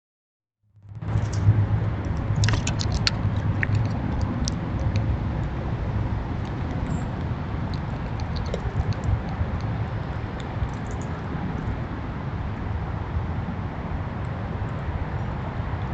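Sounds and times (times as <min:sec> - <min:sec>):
low rumble: 0:00.8 - 0:15.9.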